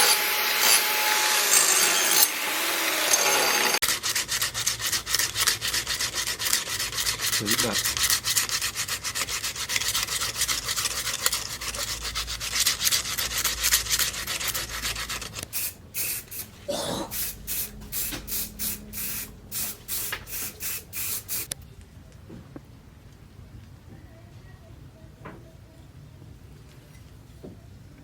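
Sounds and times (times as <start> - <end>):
abrasive rubbing strokes: 3.8 - 21.5.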